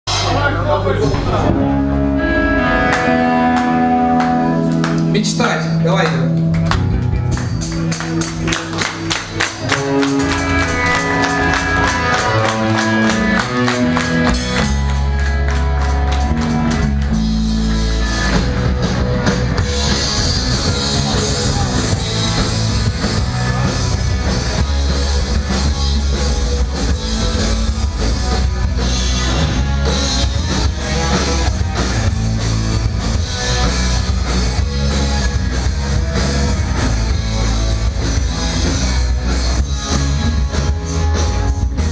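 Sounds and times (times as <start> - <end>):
punk rock band playing: 0.1 - 41.9.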